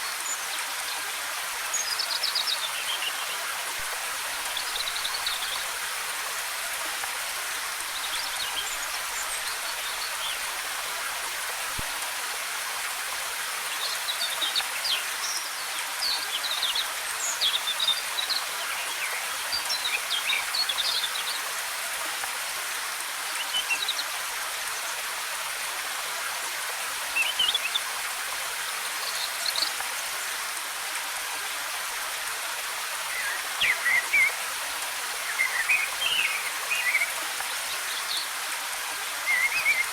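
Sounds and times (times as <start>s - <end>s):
waterfall rushing: 30.8s - 39.9s
songbirds chirping: 33.0s - 38.4s.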